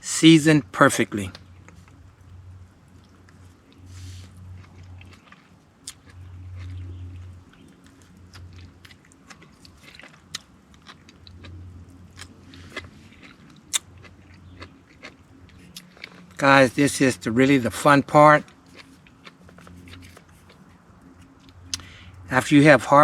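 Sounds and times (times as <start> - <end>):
person chewing and biting food: 3.0 - 16.4, 18.4 - 22.2.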